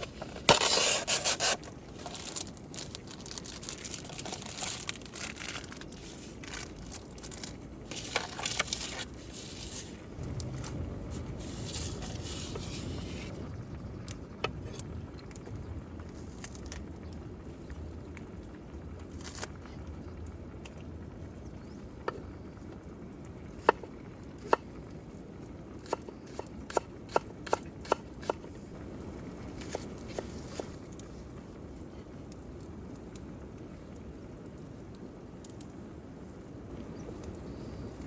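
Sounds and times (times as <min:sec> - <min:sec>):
campfire crackling and popping: 0:01.6 - 0:38.0.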